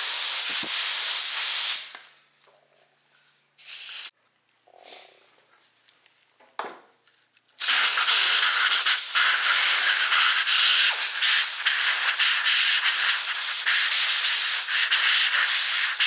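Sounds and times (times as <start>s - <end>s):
air blow gun hissing: 0.0s - 1.9s, 3.6s - 4.1s, 7.6s - 16.0s.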